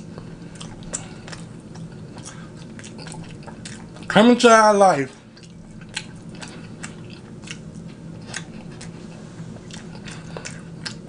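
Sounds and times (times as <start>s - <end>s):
close-up chewing: 0.0s - 4.2s, 5.1s - 11.0s
wet mouth clicks: 6.8s - 7.7s, 9.7s - 11.0s.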